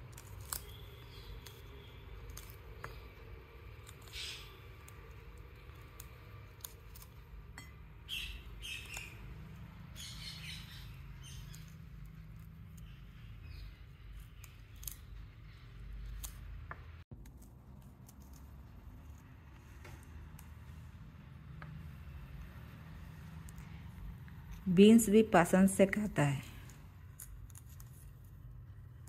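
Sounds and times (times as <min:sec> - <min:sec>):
parakeet beak crunching food: 0:00.0 - 0:24.6
parakeet chirps: 0:03.9 - 0:04.8, 0:08.0 - 0:15.6.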